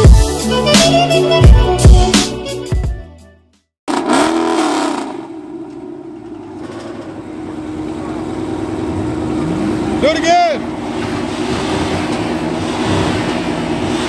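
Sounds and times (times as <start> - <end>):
background music: 0.0 - 3.6
car engine revving: 3.9 - 14.0.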